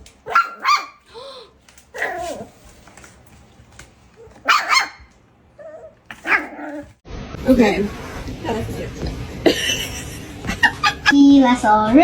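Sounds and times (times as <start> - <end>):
dog barking: 0.2 - 1.0, 4.3 - 6.9.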